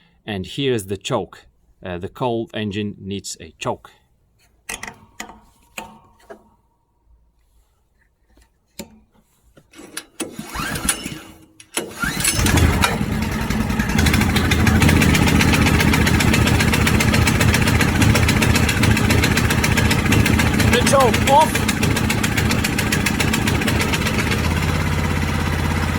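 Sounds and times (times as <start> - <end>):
petrol engine cranking: 9.7 - 25.9
small petrol engine running: 10.2 - 25.9.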